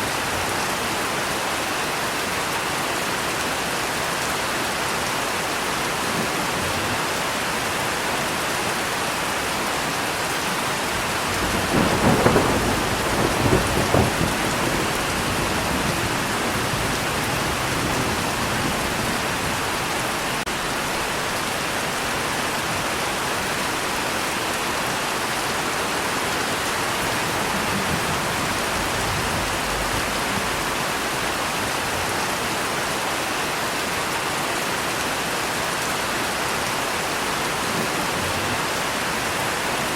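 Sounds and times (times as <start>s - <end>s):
heavy rain: 0.0s - 39.9s
thunder rumbling: 10.9s - 21.4s, 26.5s - 32.3s.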